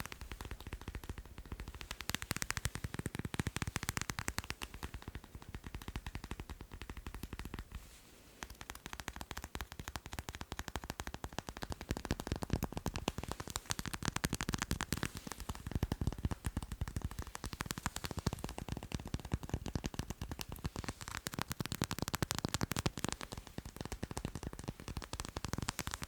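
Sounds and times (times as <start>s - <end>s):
fingers tapping on macarons: 8.5s - 26.0s.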